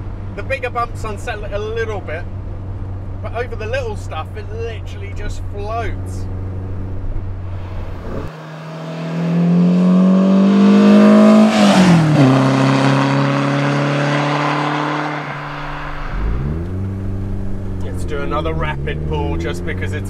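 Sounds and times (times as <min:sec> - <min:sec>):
car engine drone in cabin: 0:00.0 - 0:20.0
car accelerating past: 0:06.2 - 0:20.0.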